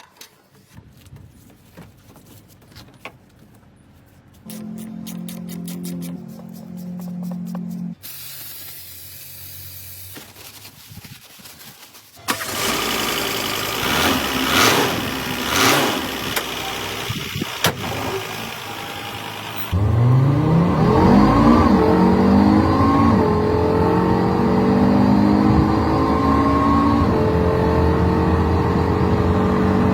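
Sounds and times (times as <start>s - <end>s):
car engine revving: 12.3s - 29.9s.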